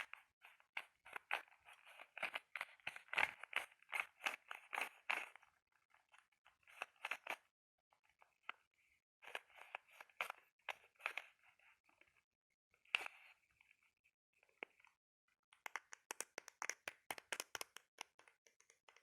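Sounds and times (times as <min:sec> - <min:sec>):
scratching on a hard object: 0:00.0 - 0:07.5.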